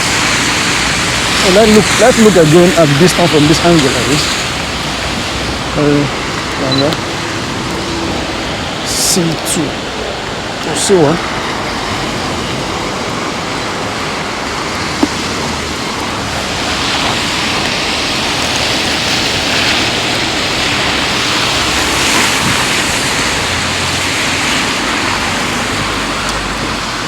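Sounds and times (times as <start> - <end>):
heavy rain hissing: 0.0 - 27.0.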